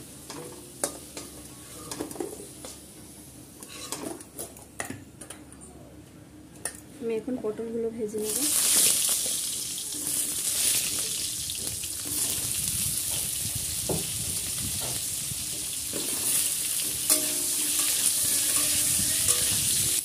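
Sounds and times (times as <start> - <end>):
metal spatula scraping pan: 3.6 - 4.1, 16.0 - 20.0
vegetables sizzling in hot oil: 8.2 - 20.0.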